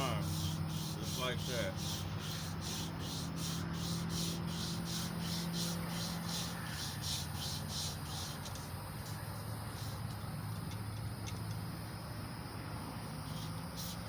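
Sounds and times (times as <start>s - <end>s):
emery cloth rubbing on metal: 0.0s - 10.2s
steady low hum: 0.0s - 14.0s.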